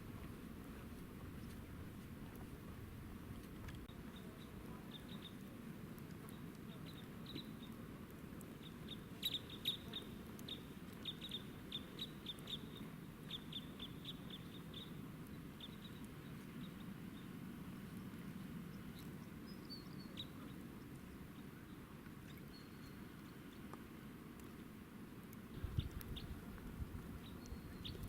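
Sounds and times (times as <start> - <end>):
faint low rumble: 0.0 - 28.0
small birds chirping: 4.0 - 5.5, 6.1 - 7.8, 8.4 - 23.7, 25.6 - 28.0.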